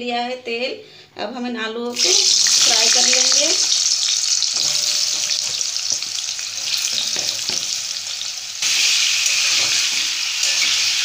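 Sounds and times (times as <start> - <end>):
potatoes sizzling in oil: 1.9 - 11.0.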